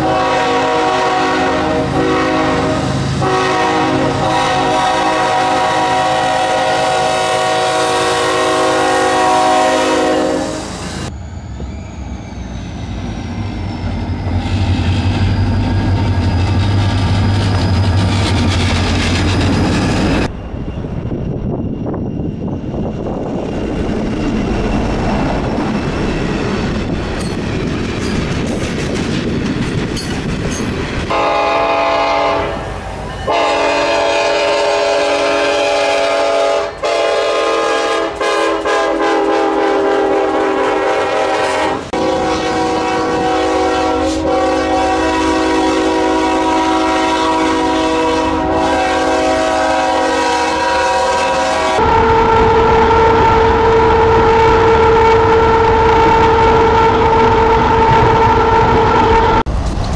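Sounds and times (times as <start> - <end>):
locomotive air horn: 0.0 - 11.1, 31.1 - 59.5
locomotive engine humming: 0.0 - 59.9
wheels clacking on rails: 12.6 - 31.2.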